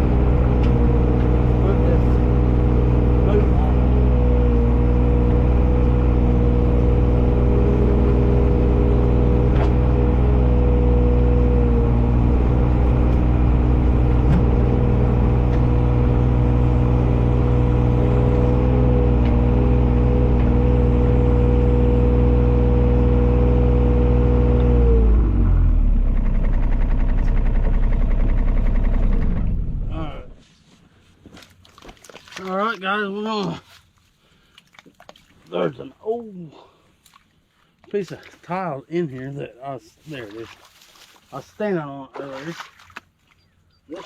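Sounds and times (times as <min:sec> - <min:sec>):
vehicle engine running: 0:00.0 - 0:30.4.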